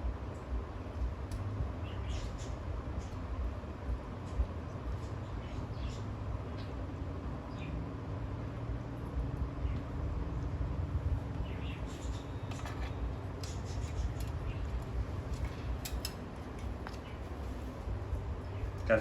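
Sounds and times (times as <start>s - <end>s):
steady low hum: 0.0s - 19.0s
beak nibbling and scraping fruit: 11.9s - 14.9s.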